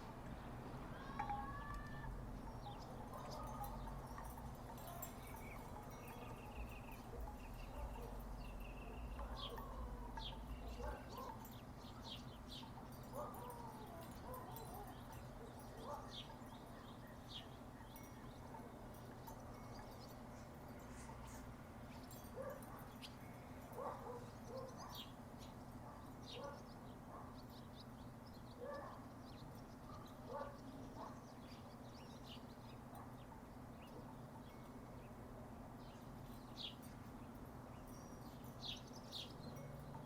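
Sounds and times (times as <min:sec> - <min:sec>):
bird chirps: 0:00.0 - 0:35.2
wooden wind chimes knocking: 0:01.0 - 0:16.8.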